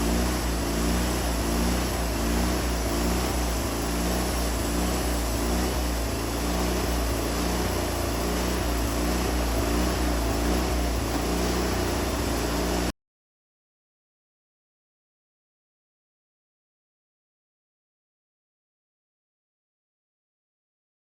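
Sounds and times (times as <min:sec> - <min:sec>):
band sawmill engine drone: 0:00.0 - 0:12.9.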